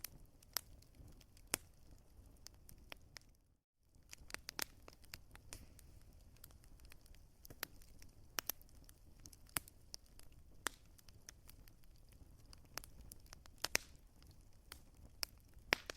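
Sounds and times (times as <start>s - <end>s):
wood fire crackling: 0.0s - 15.9s.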